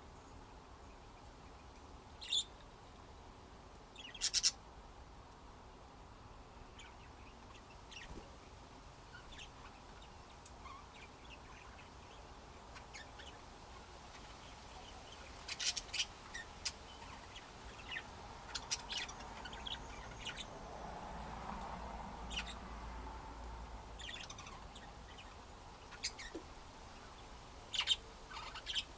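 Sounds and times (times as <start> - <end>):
budgerigars chirping and clicking: 2.2 - 2.6, 4.0 - 4.6, 9.1 - 20.7, 21.5 - 22.6, 23.4 - 28.9.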